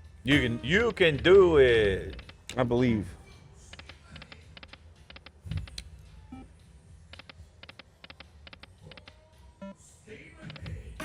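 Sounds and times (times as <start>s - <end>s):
low casino hum: 0.0s - 2.7s.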